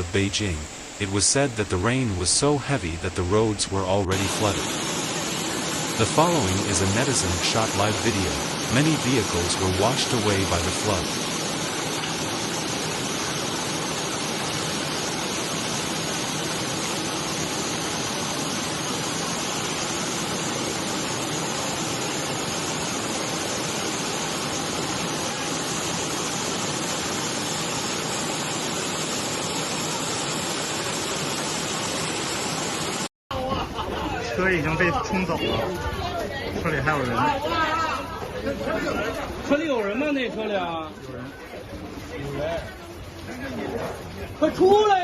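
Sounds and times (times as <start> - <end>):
rushing floodwater: 0.0 - 33.1.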